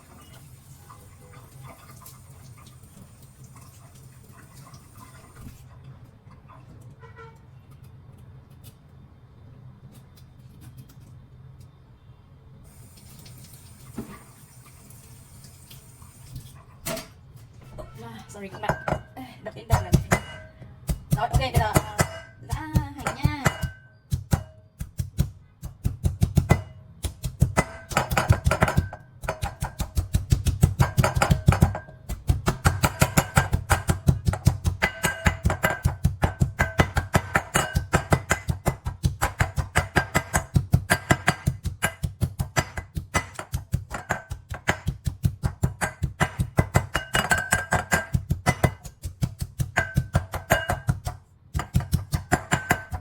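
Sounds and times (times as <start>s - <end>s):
pestle pounding in a mortar: 18.5s - 19.1s, 19.7s - 53.0s.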